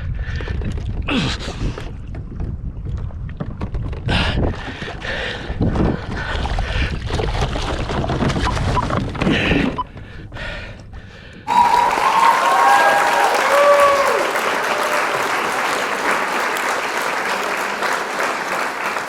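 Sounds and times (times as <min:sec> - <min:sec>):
wind buffeting microphone: 0:00.0 - 0:10.3
water splashing around kayak: 0:01.9 - 0:09.2.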